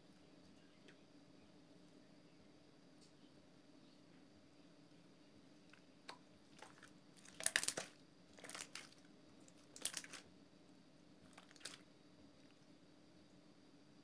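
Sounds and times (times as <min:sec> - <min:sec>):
slime crackling and popping: 0:06.1 - 0:10.2, 0:11.3 - 0:11.8.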